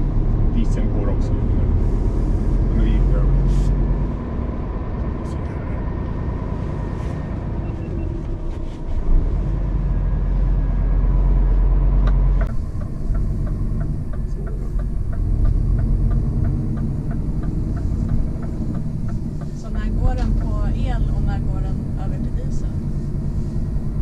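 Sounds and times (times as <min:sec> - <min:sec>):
truck cab low rumble: 0:00.0 - 0:24.0
regular ticking: 0:12.4 - 0:24.0.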